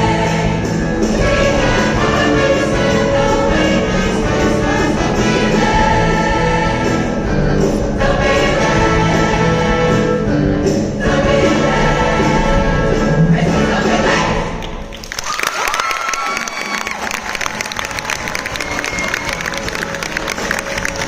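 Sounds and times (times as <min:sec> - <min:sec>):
choir singing: 0:00.0 - 0:14.8
instrumental accompaniment: 0:00.0 - 0:14.8, 0:17.8 - 0:21.0.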